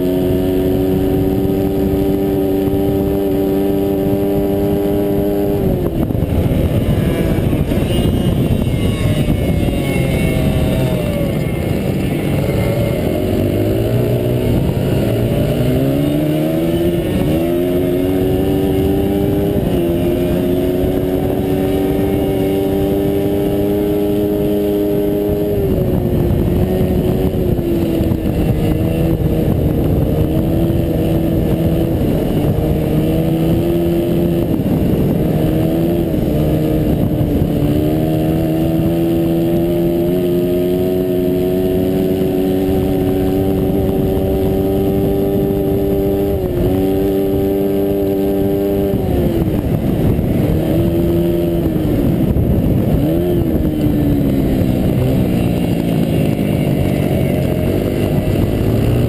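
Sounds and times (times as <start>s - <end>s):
motorcycle engine at race pace: 0.0s - 59.0s
wind and track noise: 0.0s - 59.0s.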